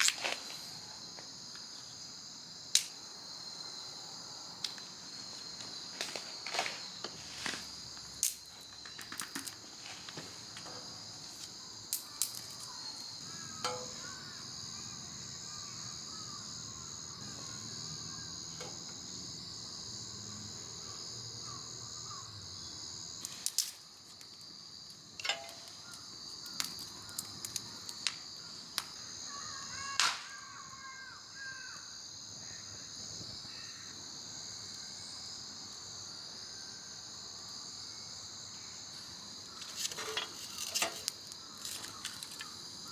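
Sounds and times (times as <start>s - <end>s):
crickets chirring: 0.0s - 42.9s
sharp clicks and cracks: 2.7s - 3.0s, 8.2s - 9.6s, 11.9s - 12.7s, 25.2s - 28.2s.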